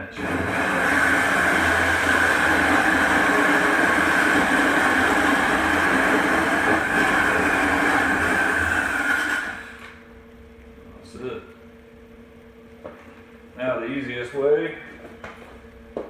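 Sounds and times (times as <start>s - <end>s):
power drill hole saw whining: 0.0s - 10.0s.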